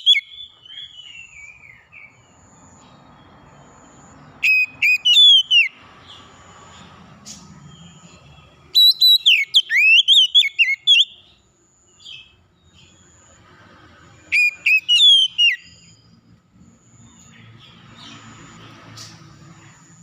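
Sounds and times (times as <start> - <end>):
songbird whistling: 0.0 - 2.2, 4.4 - 5.8, 8.7 - 11.4, 14.3 - 16.1.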